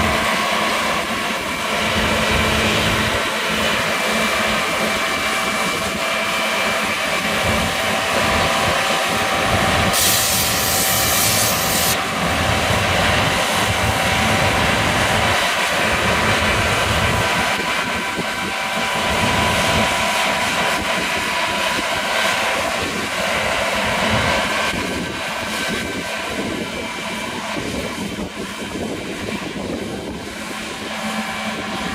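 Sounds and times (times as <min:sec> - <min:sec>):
combine harvester running: 0:00.0 - 0:31.9
hissing rush: 0:09.8 - 0:12.0.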